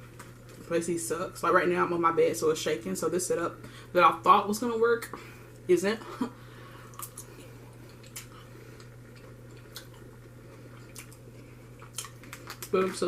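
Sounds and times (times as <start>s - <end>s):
steady low hum: 0.0s - 13.0s
person chewing food: 6.7s - 12.8s.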